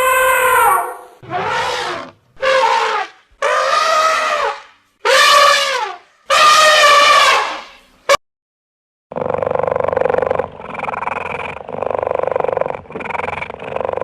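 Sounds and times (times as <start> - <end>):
animal calling: 0.0 - 7.8.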